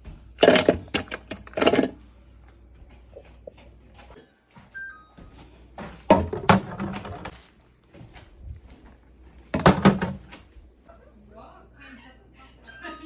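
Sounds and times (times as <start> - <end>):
fridge shelves and containers clinking: 0.0 - 2.1, 2.7 - 8.7, 9.3 - 10.5.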